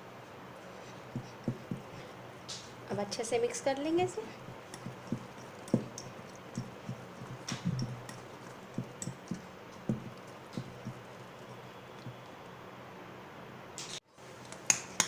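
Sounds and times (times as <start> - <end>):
utensil tapping against bowl: 1.1 - 2.0, 4.3 - 12.3.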